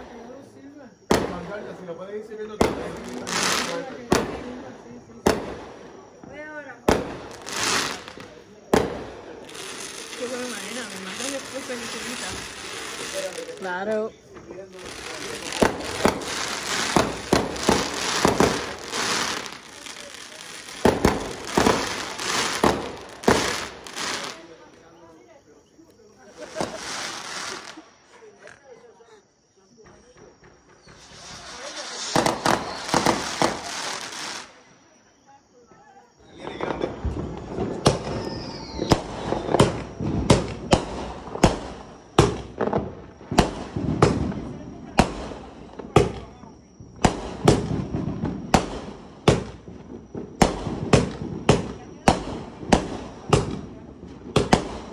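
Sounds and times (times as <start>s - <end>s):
fireworks banging and crackling: 0.0s - 28.7s, 29.7s - 35.0s, 36.2s - 54.9s
falling whistle: 38.1s - 39.5s.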